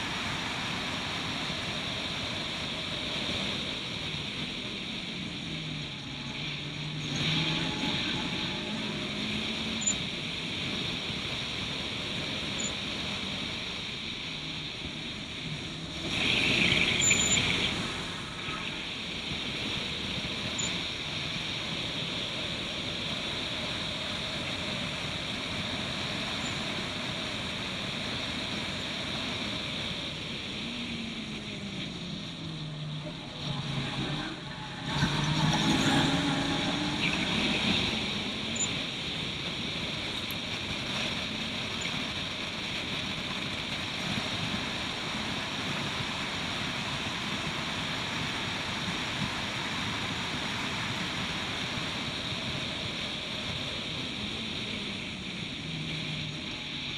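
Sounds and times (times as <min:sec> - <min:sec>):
race car engine revving: 0:00.0 - 0:12.7, 0:15.3 - 0:19.7, 0:30.5 - 0:41.8
wind and road noise: 0:00.0 - 0:56.9.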